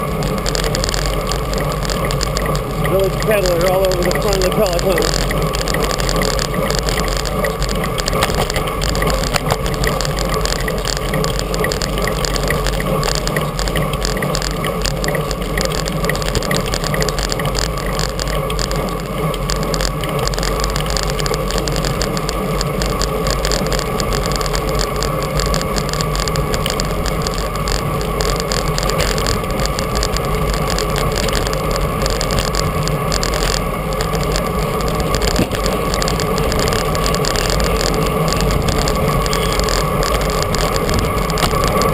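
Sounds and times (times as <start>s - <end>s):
wind and road noise: 0.0s - 41.9s.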